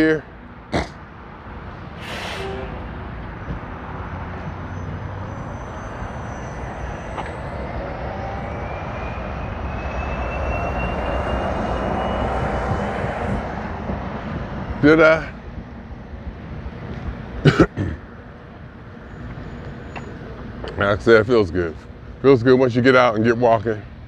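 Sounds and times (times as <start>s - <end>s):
distant engine drone: 0.5s - 22.3s
faint rising whine: 1.7s - 14.7s.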